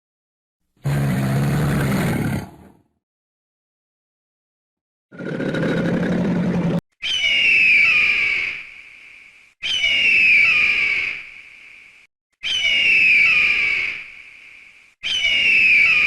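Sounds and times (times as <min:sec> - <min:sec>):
rough low animal sound: 0:00.8 - 0:02.8, 0:05.1 - 0:06.8
farm animal high-pitched calls: 0:07.0 - 0:08.7, 0:09.6 - 0:11.3, 0:12.4 - 0:14.1, 0:15.0 - 0:16.0.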